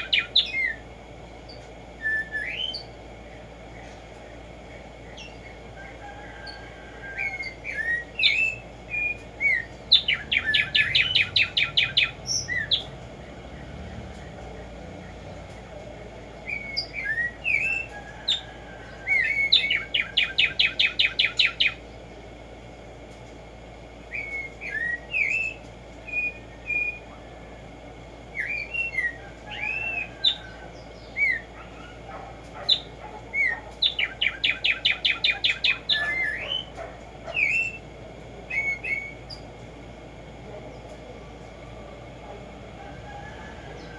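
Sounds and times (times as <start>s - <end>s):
sparrow singing a trill: 0.0s - 3.0s, 6.4s - 13.3s, 16.4s - 22.1s, 24.1s - 27.4s, 28.3s - 39.5s.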